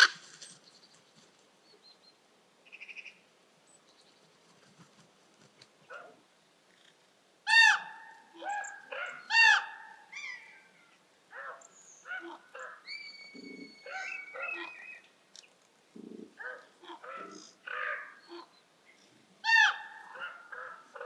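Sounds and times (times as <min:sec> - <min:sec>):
harsh bird calls: 0:07.5 - 0:15.1
high whistled bird notes: 0:12.8 - 0:15.1.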